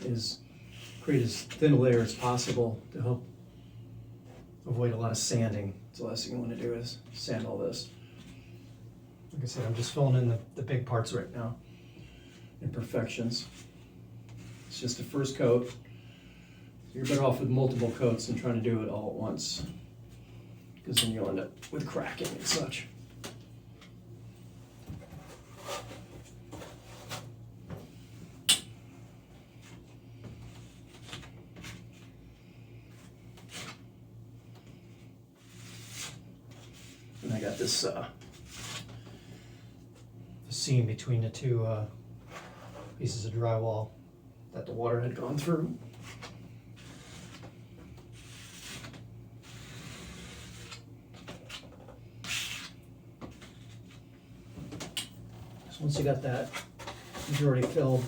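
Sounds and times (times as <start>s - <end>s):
steady low hum: 0.0s - 58.0s
card scraping spackle on drywall: 48.1s - 51.6s.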